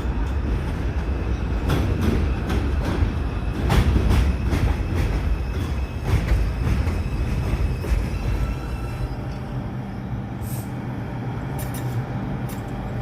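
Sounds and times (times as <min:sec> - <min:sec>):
subway train rumbling: 0:00.0 - 0:13.0
wheels clacking over rail joints: 0:00.1 - 0:09.6.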